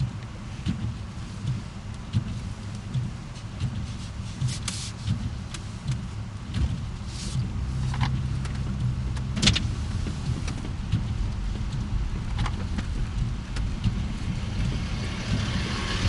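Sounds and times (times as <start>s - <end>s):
sharp clicks and knocks: 0.0s - 15.6s
car engine and road rumble: 0.0s - 16.0s.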